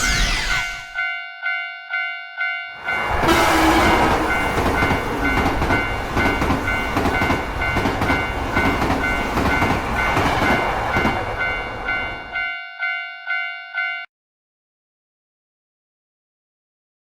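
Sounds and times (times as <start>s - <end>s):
level crossing alarm bell: 0.0s - 14.1s.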